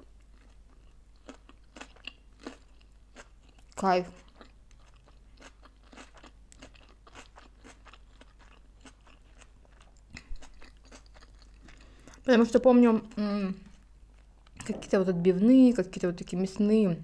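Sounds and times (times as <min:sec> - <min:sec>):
person chewing crunchy food: 0:00.0 - 0:12.3, 0:13.6 - 0:14.7.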